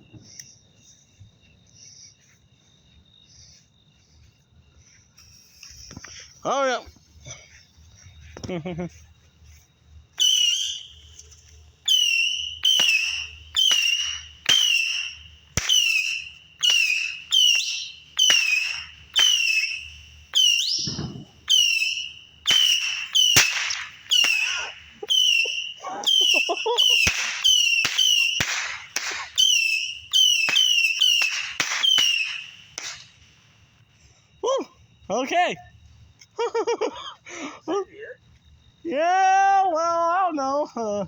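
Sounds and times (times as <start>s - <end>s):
whistling rockets firing: 10.2s - 33.2s.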